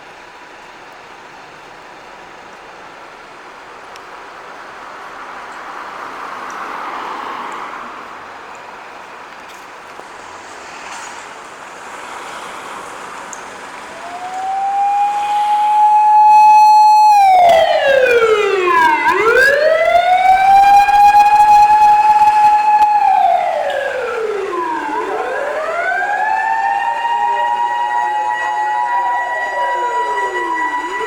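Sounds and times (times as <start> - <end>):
fire engine siren wailing: 11.8 - 31.0.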